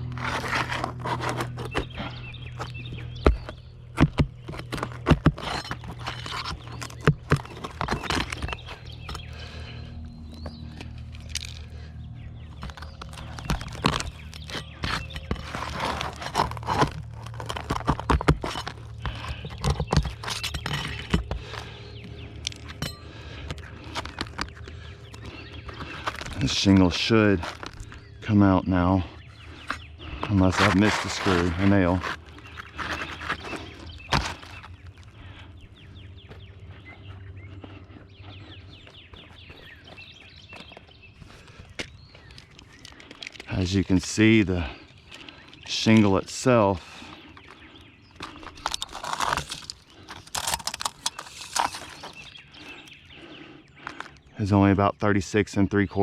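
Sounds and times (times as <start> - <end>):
roof shingles being pried and scraped: 0.0 - 28.1, 29.2 - 35.6, 46.8 - 54.1
low steady hum: 0.0 - 55.8
birds chirping: 0.0 - 56.0.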